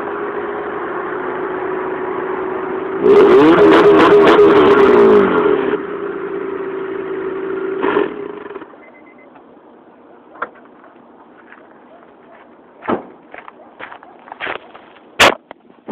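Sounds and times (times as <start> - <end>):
car engine revving high: 1.0 - 8.8.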